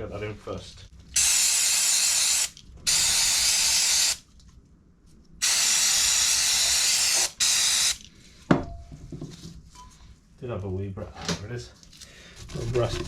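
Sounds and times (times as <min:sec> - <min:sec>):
aerosol spray hissing: 0:05.4 - 0:08.0.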